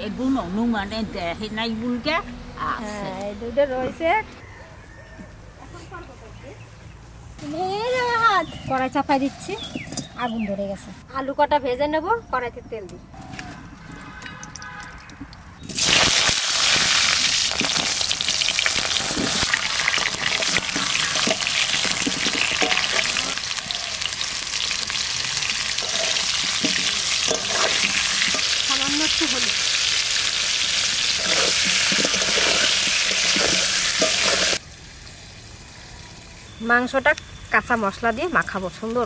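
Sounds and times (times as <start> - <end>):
potatoes sizzling in hot oil: 15.6 - 39.0
metal spatula turning food: 17.3 - 34.6.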